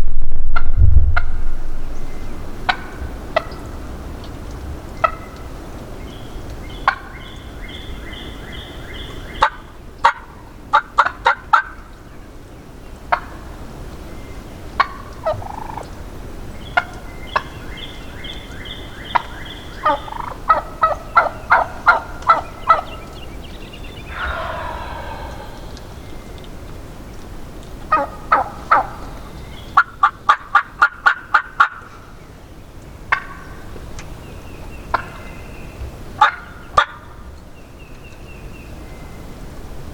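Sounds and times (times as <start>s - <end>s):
wild turkey gobbling: 14.8s - 16.0s, 19.1s - 22.9s, 27.9s - 29.0s.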